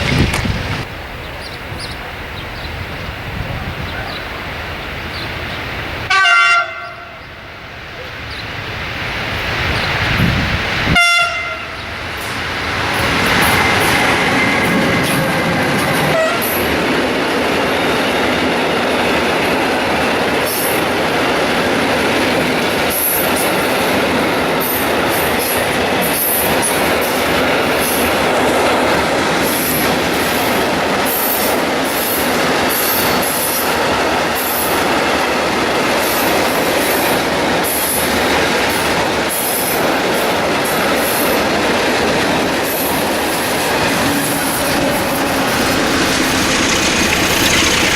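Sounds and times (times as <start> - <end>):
steel wheels rumbling on rail: 0.0 - 47.9
wheels squealing: 42.3 - 47.9.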